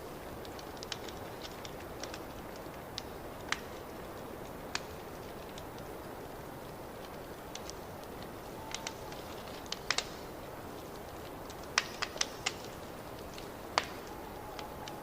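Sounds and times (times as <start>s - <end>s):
fireplace fire crackling: 0.0s - 15.0s
sharp pops of burning wood: 0.0s - 15.0s.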